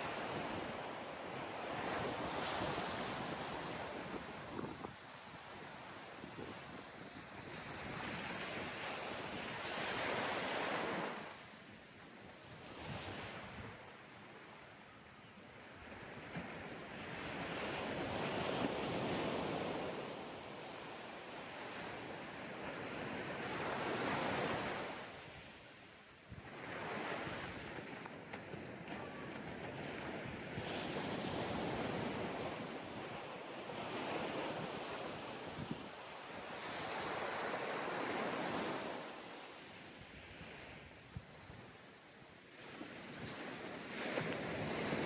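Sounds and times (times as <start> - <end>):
ocean waves breaking on sand: 0.0 - 45.0
wind on microphone: 1.7 - 11.2.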